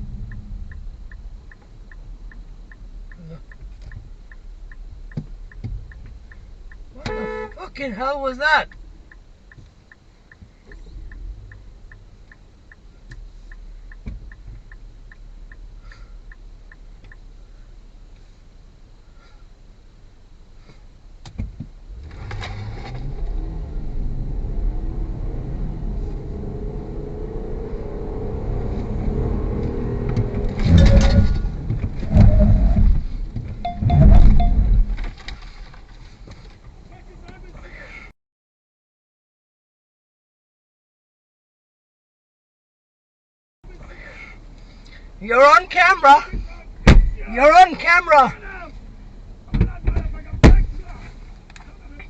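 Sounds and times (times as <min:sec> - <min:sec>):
low rumble of car: 0:00.0 - 0:38.1, 0:43.6 - 0:52.0
loud thumps: 0:30.2 - 0:35.2, 0:46.8 - 0:47.2, 0:49.5 - 0:50.8.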